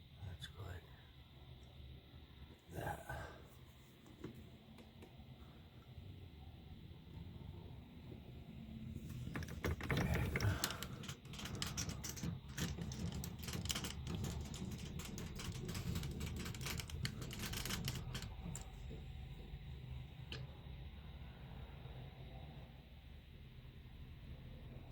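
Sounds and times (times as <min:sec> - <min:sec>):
metallic clicking and clattering: 0:09.0 - 0:19.0.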